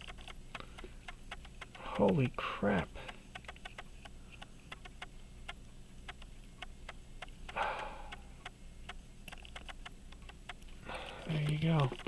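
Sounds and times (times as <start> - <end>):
light sharp ticking clicks: 0.0 - 12.0.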